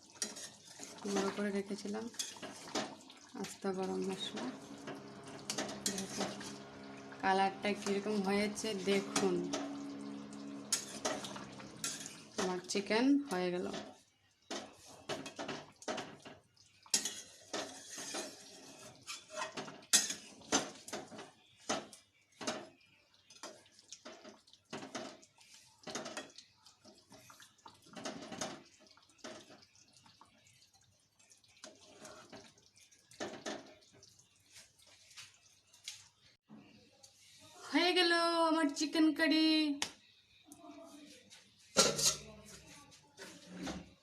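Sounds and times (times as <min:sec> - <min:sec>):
metal utensils scraping a pot: 0:00.0 - 0:12.9, 0:16.9 - 0:22.7, 0:41.7 - 0:44.0.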